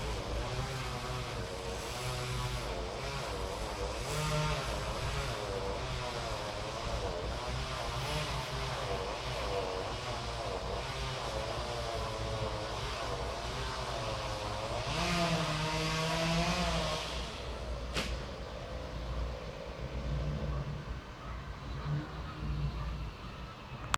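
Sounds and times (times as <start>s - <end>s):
chainsaw revving while cutting: 0.0s - 18.3s
sharp crack: 17.9s - 18.4s.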